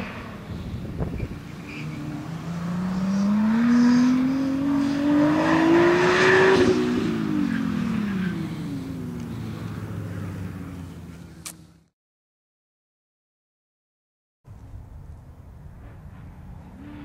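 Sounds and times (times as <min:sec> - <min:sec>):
car engine accelerating hard: 0:00.0 - 0:11.4.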